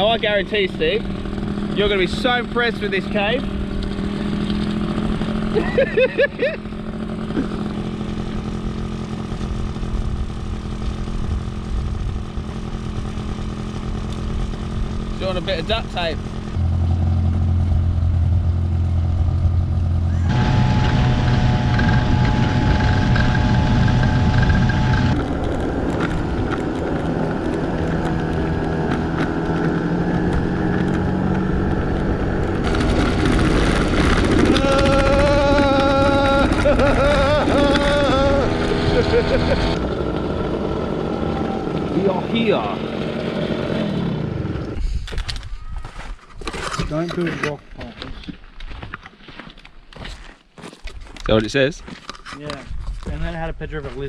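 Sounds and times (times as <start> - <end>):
higher engine note: 0.0 - 44.8
scooter engine running: 0.0 - 47.0
road and wind noise: 0.0 - 50.0, 50.8 - 54.0
low rumbling noise: 6.6 - 45.8.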